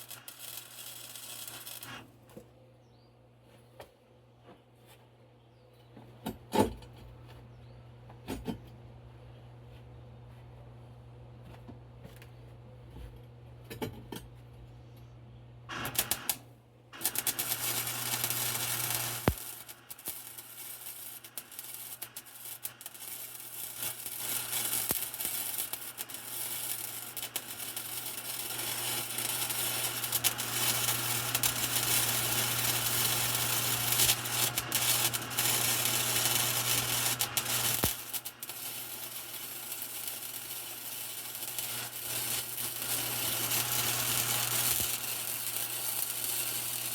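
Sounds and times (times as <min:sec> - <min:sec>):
welding arc crackling: 0:00.0 - 0:02.1, 0:15.7 - 0:16.4, 0:17.0 - 0:46.9
low electrical hum: 0:00.0 - 0:46.9.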